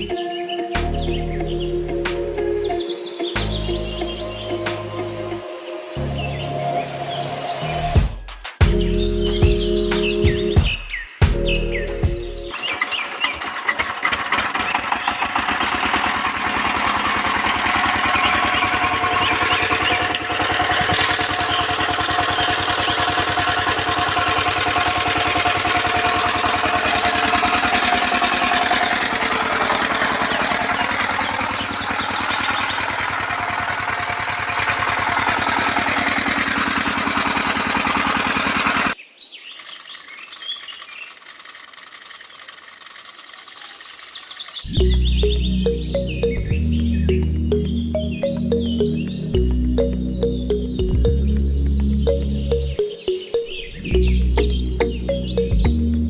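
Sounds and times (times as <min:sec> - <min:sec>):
small engine running: 0:00.0 - 0:00.3, 0:11.6 - 0:56.0
birds chirping: 0:00.0 - 0:15.3, 0:17.8 - 0:56.0.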